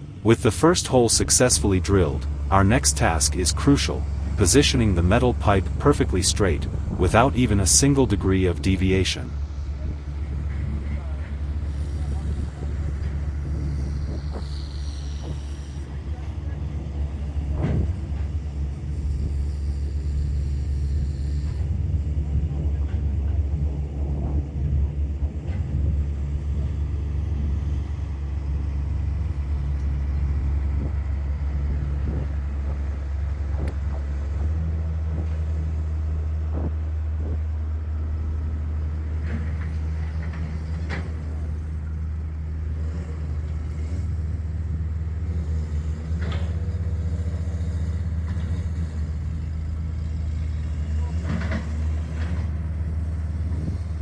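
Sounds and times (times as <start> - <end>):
heavy machinery engine humming: 0.0 - 54.0.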